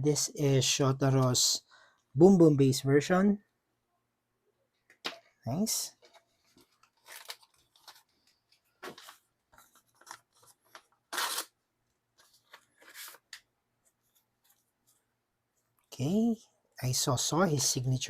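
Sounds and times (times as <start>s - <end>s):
plastic and paper packaging rustling: 6.0s - 11.5s.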